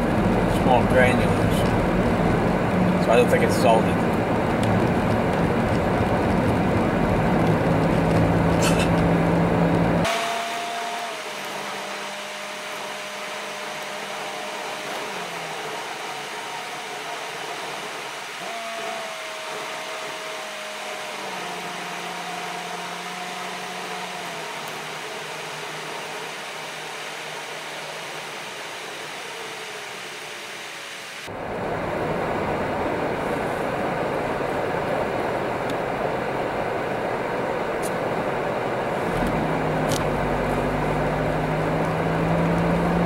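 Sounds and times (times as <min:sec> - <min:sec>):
tyre and road noise: 0:00.0 - 0:43.0.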